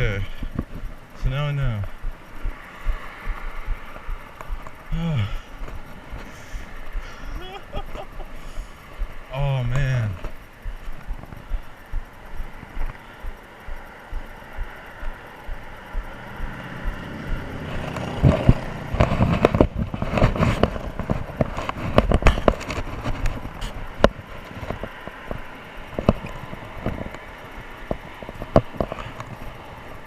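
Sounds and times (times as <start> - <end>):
rough road noise and knocks: 0.0 - 30.0
motor vehicle passing: 1.6 - 21.5.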